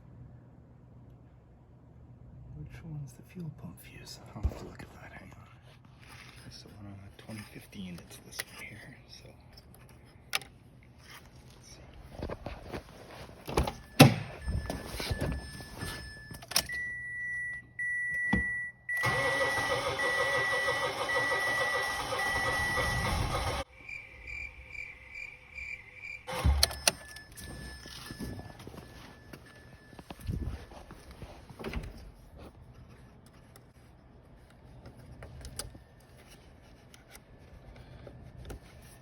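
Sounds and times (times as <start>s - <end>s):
electronic dashboard chimes: 13.8s - 30.8s
car engine cranking: 19.0s - 23.7s.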